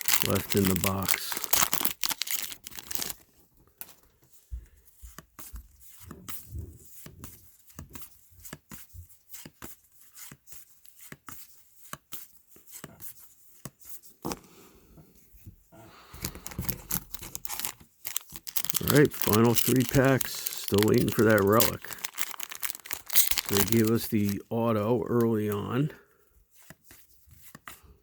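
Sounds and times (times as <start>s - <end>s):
trading cards clicking and sliding: 0.0s - 3.2s, 16.2s - 25.7s
foil wrapper crinkling: 0.0s - 4.0s, 16.2s - 25.7s.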